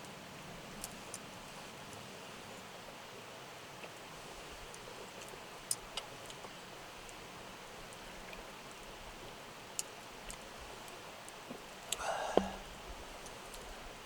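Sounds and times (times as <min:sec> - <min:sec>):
campfire crackles: 0:00.0 - 0:14.0
stream murmuring: 0:03.1 - 0:14.0.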